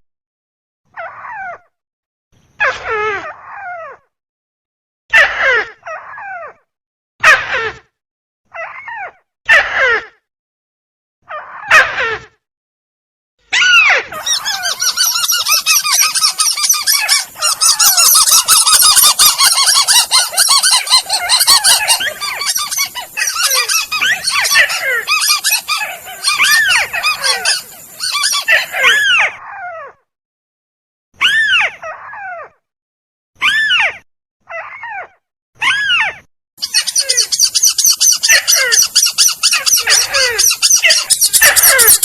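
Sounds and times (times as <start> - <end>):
crake calls chorus: 14.2 - 29.0.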